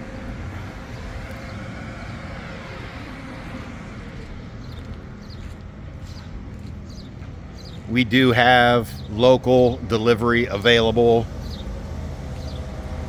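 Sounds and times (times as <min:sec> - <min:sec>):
traffic rumble: 0:00.0 - 0:13.0
vehicle passing by: 0:00.0 - 0:13.0.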